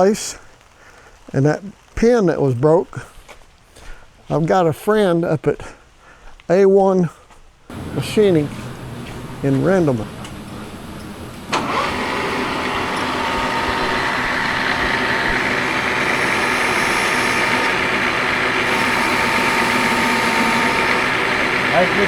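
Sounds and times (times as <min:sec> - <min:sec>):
machine humming and whining: 0:07.7 - 0:22.0.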